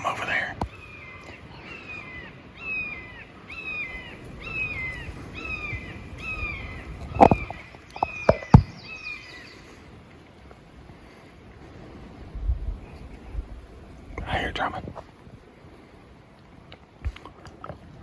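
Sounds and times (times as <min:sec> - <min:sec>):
songbird singing falling notes: 0:00.6 - 0:09.6.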